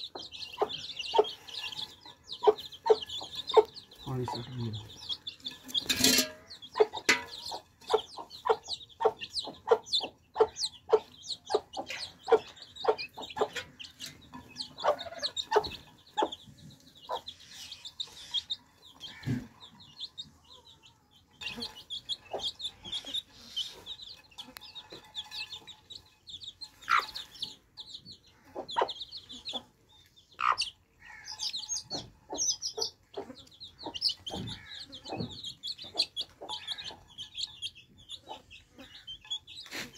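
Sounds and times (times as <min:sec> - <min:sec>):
chicks peeping: 0:00.0 - 0:39.9
beaks tapping water dish: 0:00.2 - 0:16.4.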